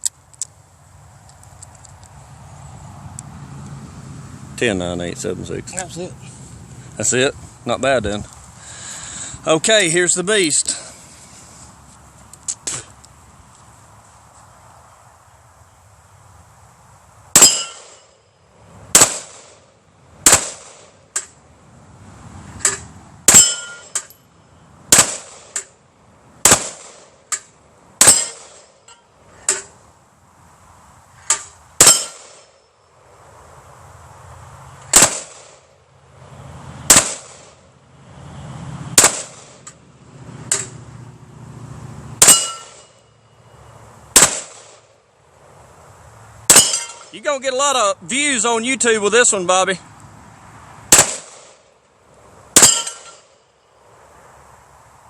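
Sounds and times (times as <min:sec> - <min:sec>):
bullets ringing on steel plates: 0:17.4 - 0:18.2, 0:23.3 - 0:24.2, 0:28.0 - 0:29.1, 0:31.8 - 0:32.7, 0:42.2 - 0:43.2, 0:46.5 - 0:47.1, 0:52.6 - 0:53.3
gunshots: 0:18.9 - 0:19.6, 0:20.2 - 0:20.9, 0:24.9 - 0:25.6, 0:26.4 - 0:27.1, 0:34.9 - 0:35.6, 0:36.9 - 0:37.6, 0:39.0 - 0:39.6, 0:44.2 - 0:44.8, 0:50.9 - 0:51.6.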